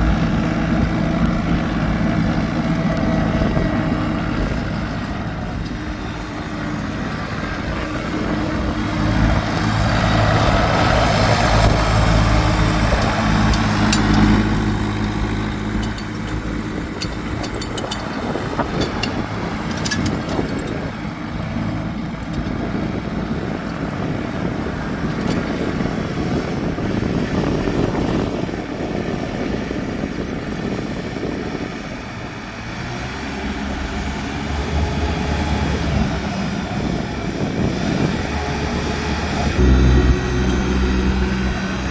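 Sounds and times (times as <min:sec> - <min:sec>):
tractor engine running: 0:00.0 - 0:41.9.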